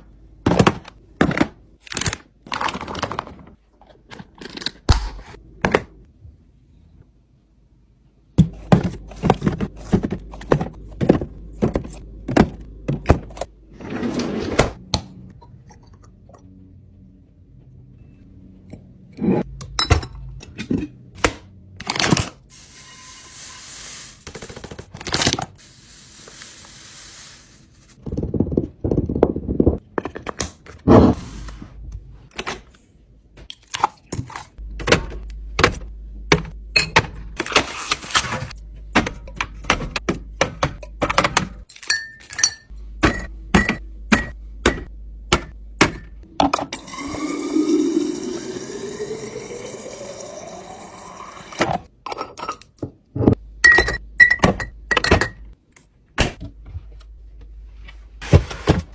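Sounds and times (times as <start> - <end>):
food containers knocking and scraping: 8.4 - 13.5.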